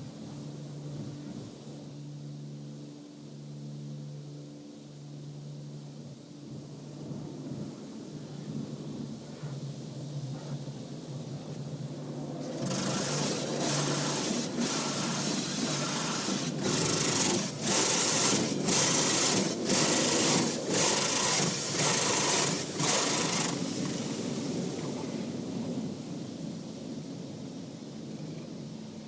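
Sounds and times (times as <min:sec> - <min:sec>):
car wash rushing hiss: 0:11.4 - 0:27.0.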